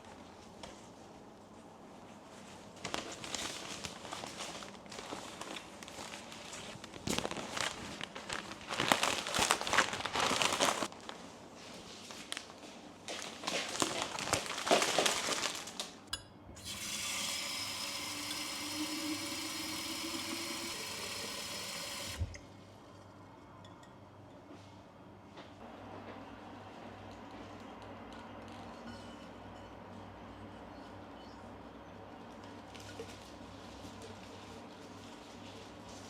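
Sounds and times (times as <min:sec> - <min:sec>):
crinkling rustling handling noise: 0:00.0 - 0:16.1, 0:32.3 - 0:36.0
tap water running: 0:16.6 - 0:22.4.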